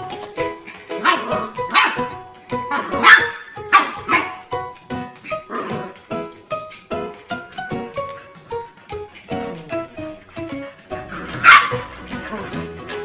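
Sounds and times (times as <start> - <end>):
plucked string music: 0.0 - 13.0
dog barking: 0.9 - 2.1, 2.7 - 4.4, 11.3 - 12.0.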